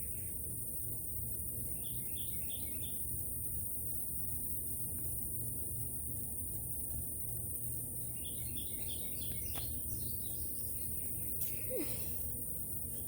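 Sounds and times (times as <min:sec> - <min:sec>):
small birds chirping: 0:01.6 - 0:03.3, 0:07.0 - 0:13.0.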